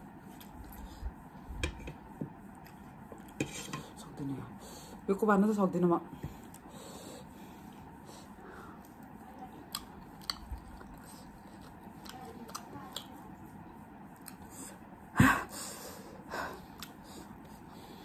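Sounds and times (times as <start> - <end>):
quiet chewing: 0.2 - 4.0, 6.2 - 15.0, 16.6 - 18.0.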